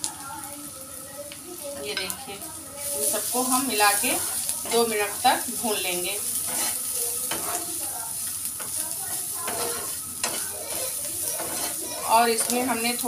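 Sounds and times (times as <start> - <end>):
food sizzling in hot oil: 0.0 - 13.0
metal spoon scraping pan: 3.0 - 7.8, 8.6 - 13.0.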